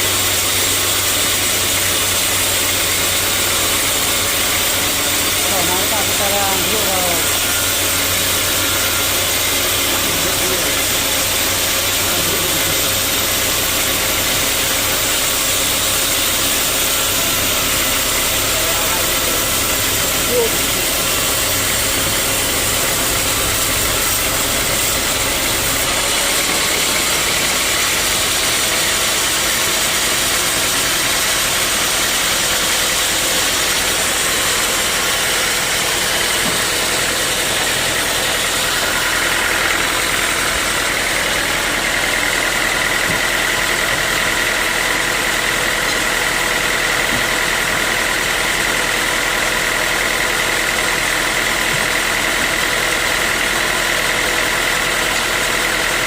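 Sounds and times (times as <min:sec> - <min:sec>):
high steady whine: 0:00.0 - 0:43.9
sawmill machinery running: 0:00.0 - 0:56.0.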